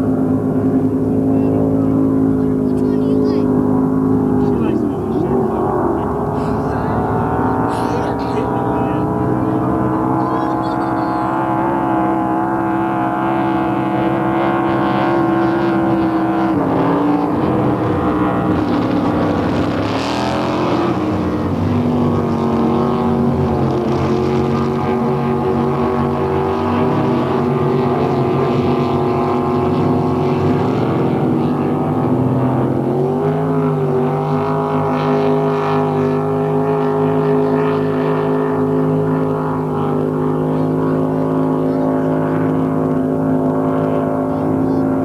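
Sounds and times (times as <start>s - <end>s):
motorboat engines racing: 0.0s - 45.0s.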